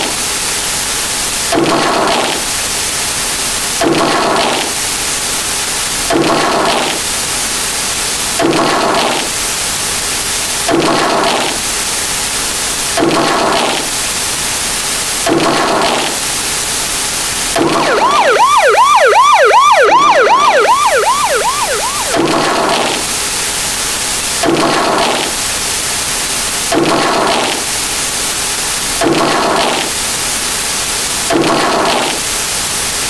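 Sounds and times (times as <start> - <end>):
electronic siren wailing: 17.6 - 23.2.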